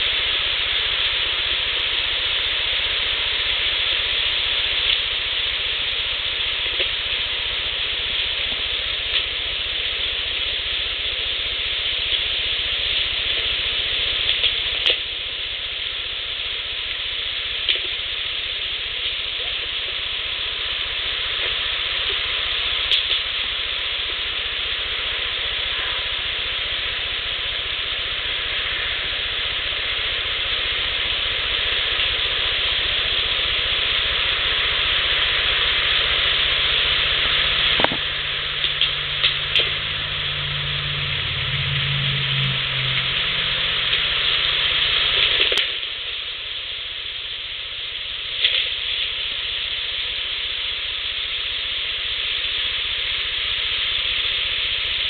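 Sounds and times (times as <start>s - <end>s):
low hum: 0.0s - 51.6s
steady hiss: 0.0s - 55.0s.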